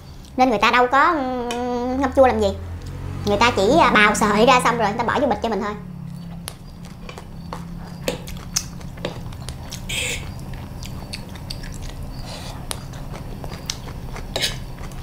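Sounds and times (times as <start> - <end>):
close-up chewing: 6.0 - 15.0.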